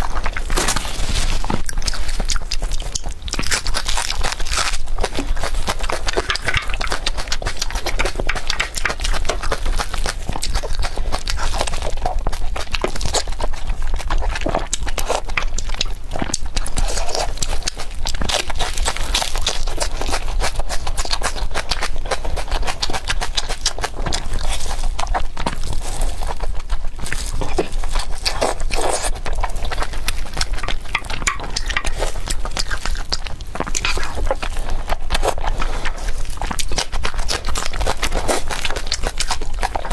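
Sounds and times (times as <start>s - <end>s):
person chewing and biting: 1.4s - 13.2s, 27.9s - 35.2s.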